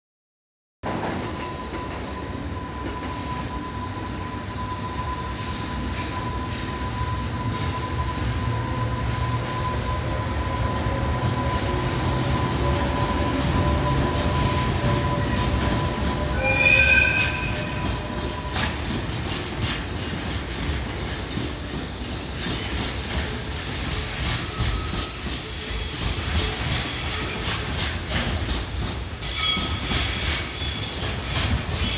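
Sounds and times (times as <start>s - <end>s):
freight train rumbling: 0.8s - 31.9s
shrill multi-tone squeal: 1.6s - 18.8s, 22.7s - 27.8s, 29.2s - 31.2s.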